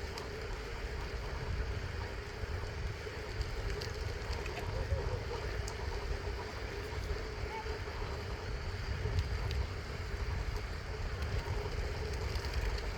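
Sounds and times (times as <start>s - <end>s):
faint ticks: 0.0s - 1.4s, 2.2s - 6.0s, 8.8s - 12.9s
faint steady hum: 0.0s - 12.9s
wind rumbling on microphone: 0.0s - 12.9s.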